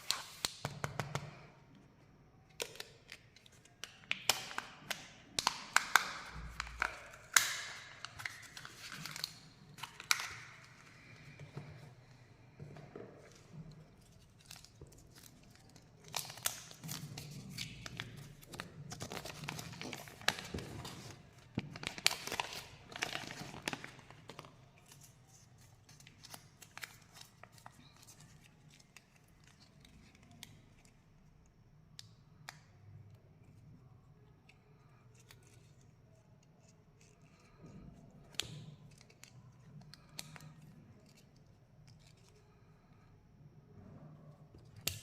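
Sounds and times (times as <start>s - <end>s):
plastic wrapper crinkling and tearing: 2.5s - 11.2s, 13.8s - 31.2s.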